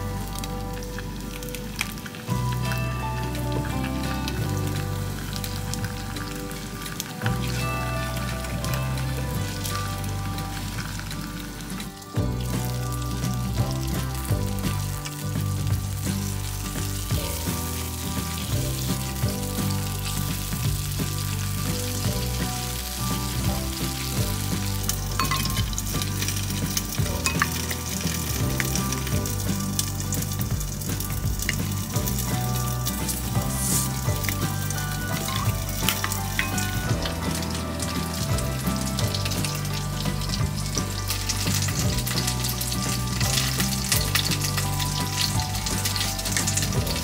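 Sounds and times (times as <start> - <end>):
background music: 0.0 - 47.0
food sizzling in a pan: 0.0 - 47.0.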